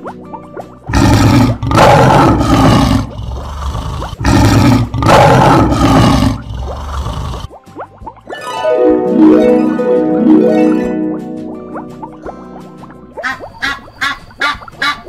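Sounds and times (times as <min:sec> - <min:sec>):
lion roaring: 0:00.9 - 0:07.5
plucked harp music: 0:08.1 - 0:13.2.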